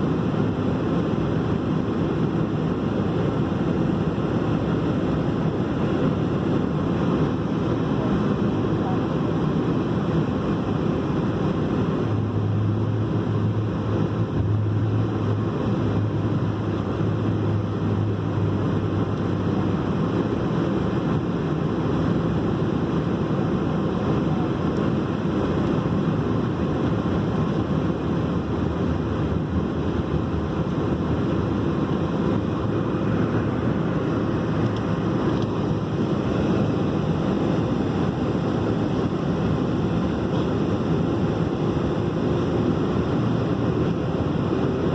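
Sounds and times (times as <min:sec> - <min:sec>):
jet engines and airflow rushing: 0:00.0 - 0:44.9
low hum: 0:11.6 - 0:20.4, 0:25.2 - 0:44.9.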